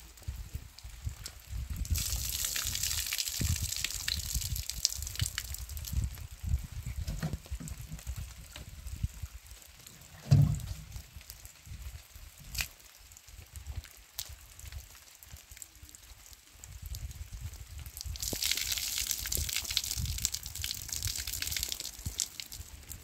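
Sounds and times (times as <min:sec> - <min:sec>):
rain falling and dripping: 0:00.0 - 0:23.0
water pouring and splashing: 0:00.0 - 0:23.0
low thump: 0:10.2 - 0:10.9.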